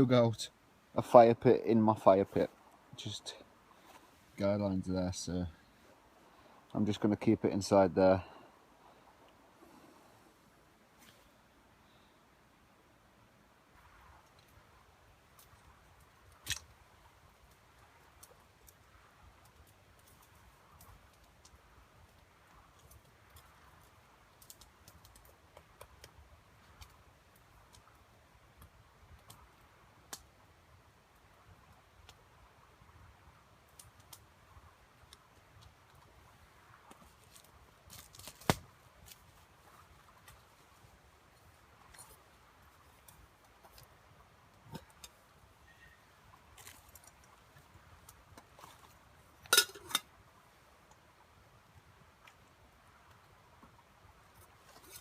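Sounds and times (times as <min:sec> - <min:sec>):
camp gear handling noises: 0:36.8 - 0:45.8, 0:46.4 - 0:50.2, 0:54.3 - 0:55.0
kindling clicking and snapping: 0:37.9 - 0:39.2.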